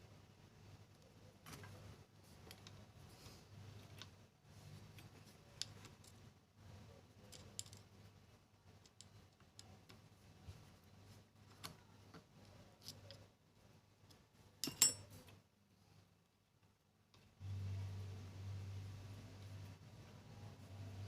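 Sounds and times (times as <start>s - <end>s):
faint low hum: 0.0s - 21.0s
small metal parts clicking: 4.9s - 6.3s, 7.2s - 8.0s, 8.7s - 10.0s, 12.4s - 13.3s, 14.6s - 15.4s.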